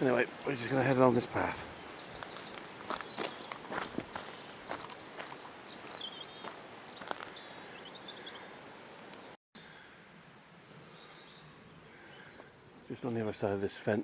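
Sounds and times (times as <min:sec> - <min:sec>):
songbird warbling: 0:00.0 - 0:08.5
woodland ambience: 0:00.0 - 0:14.0
faint footsteps: 0:02.1 - 0:07.4.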